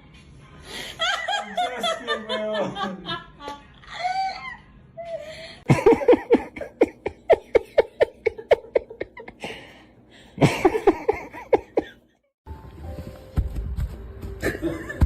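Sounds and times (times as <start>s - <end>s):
person laughing heartily: 5.6s - 9.8s, 10.4s - 12.1s, 14.4s - 15.0s.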